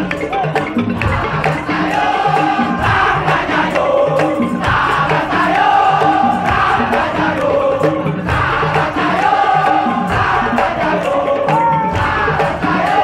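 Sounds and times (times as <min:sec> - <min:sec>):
repeated percussion strokes: 0:00.0 - 0:13.0.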